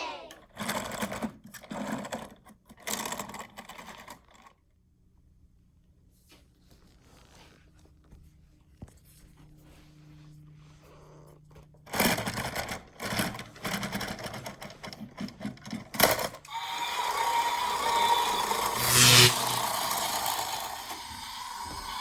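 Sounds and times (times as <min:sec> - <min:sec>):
toy electric train motor whirring: 0:00.0 - 0:04.3, 0:11.8 - 0:22.0.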